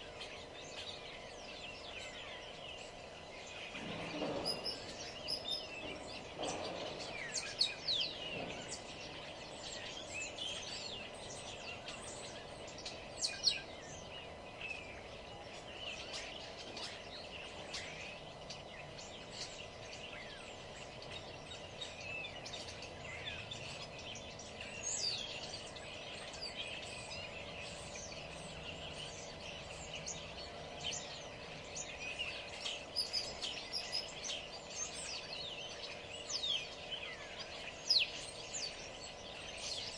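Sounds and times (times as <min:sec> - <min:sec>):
songbirds chirping and singing: 0:00.0 - 0:39.9
steady low background hum: 0:00.0 - 0:39.9.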